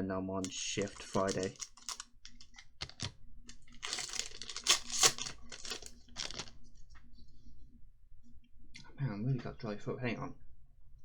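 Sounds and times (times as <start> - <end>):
foil wrapper crinkling and tearing: 0.4 - 6.6.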